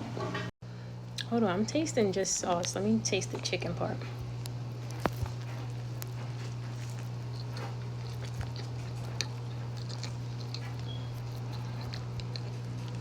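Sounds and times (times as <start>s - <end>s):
person chewing: 4.1s - 13.0s
wet mouth clicks: 6.8s - 13.0s.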